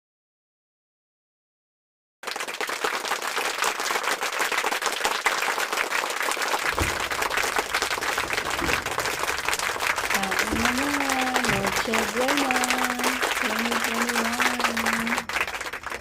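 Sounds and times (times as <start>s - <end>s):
firecrackers crackling: 5.9s - 16.0s
deep booms: 6.6s - 16.0s.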